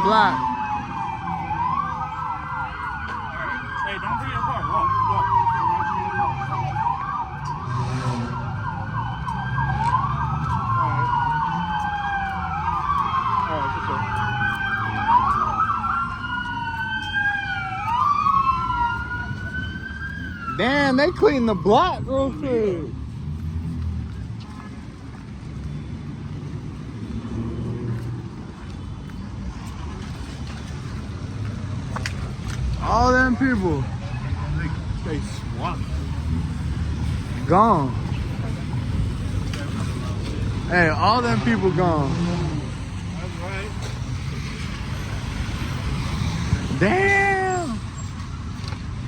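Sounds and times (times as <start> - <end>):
police siren yelping: 0.0 - 22.6
police siren wailing: 0.0 - 23.6, 29.9 - 49.0
road noise: 0.0 - 49.0
street traffic rumble: 0.0 - 49.0.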